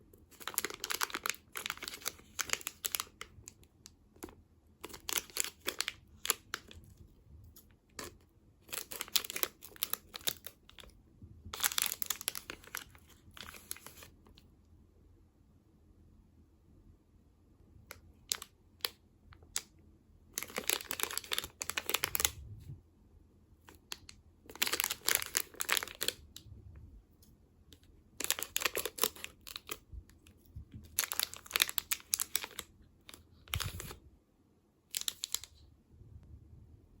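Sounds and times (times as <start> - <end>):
plastic packaging crinkling: 0.3 - 7.0, 7.9 - 10.9, 11.5 - 14.2, 20.4 - 22.4, 23.7 - 26.2, 28.2 - 29.8, 30.7 - 34.0, 34.9 - 35.5.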